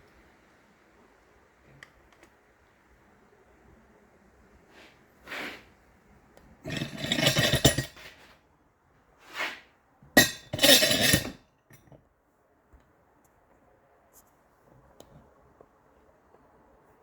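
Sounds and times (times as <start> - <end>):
metal hand tools clinking: 6.7 - 8.0, 10.2 - 11.9.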